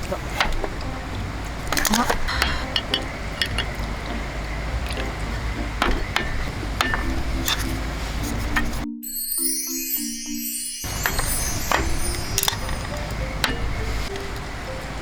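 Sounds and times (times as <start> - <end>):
low background rumble: 0.0 - 8.8
tableware clinking: 1.7 - 5.2, 5.8 - 8.8, 10.8 - 15.0.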